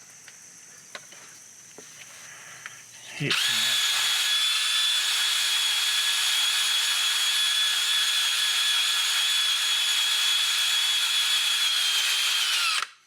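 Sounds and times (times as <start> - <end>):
drill whining: 3.3 - 13.0.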